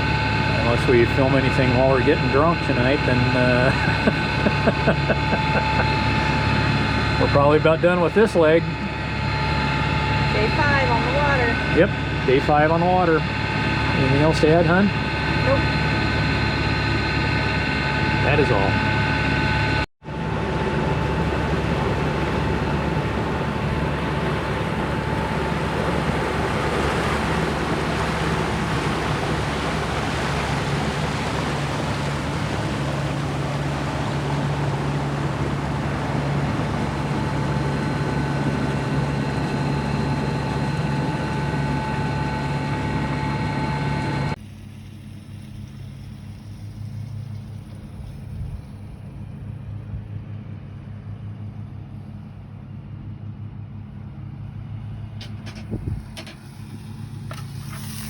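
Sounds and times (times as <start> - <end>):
boat engine droning: 0.0 - 58.0
low hum: 0.0 - 58.0
rushing water and wind: 20.3 - 41.2.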